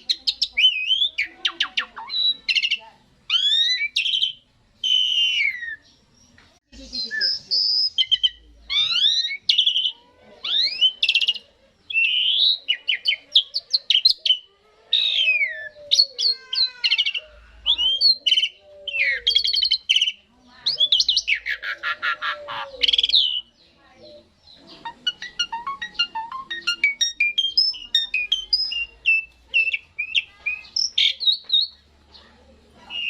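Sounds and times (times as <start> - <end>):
starling song: 24.6 - 31.2.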